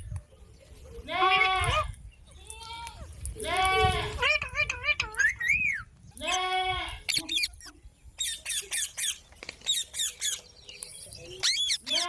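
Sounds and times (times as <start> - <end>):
parrot squawking: 4.1 - 5.8, 7.1 - 9.2, 11.4 - 12.0.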